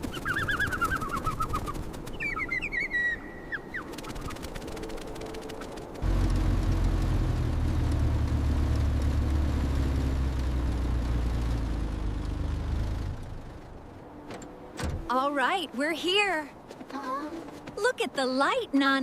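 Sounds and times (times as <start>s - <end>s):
van engine humming: 6.0s - 15.3s.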